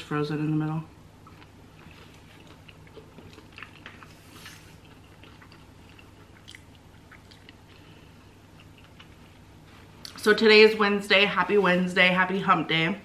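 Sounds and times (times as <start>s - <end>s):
person chewing food: 1.2s - 10.2s.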